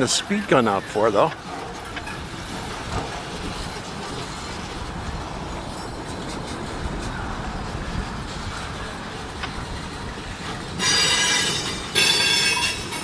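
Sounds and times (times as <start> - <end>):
freight train rumbling: 0.0 - 13.0
steel wheels screeching on rails: 0.0 - 13.0.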